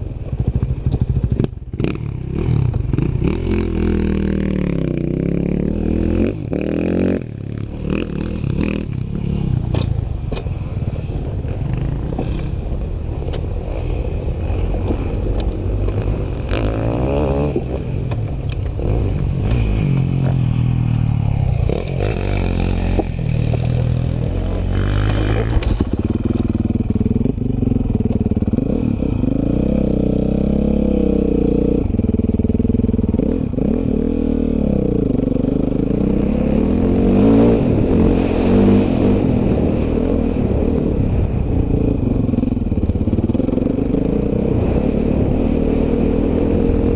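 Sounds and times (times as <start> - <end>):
dirt bike engines revving: 0.0 - 46.9.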